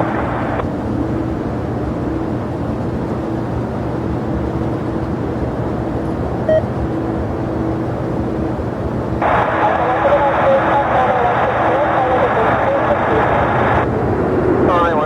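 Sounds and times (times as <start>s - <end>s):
jet engines rumbling: 0.0s - 15.0s
short beep: 6.5s - 6.7s.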